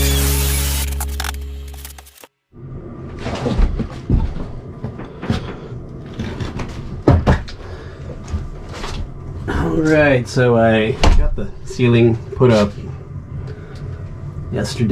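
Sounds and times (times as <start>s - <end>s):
sharp knocks and thumps: 6.2s - 7.6s.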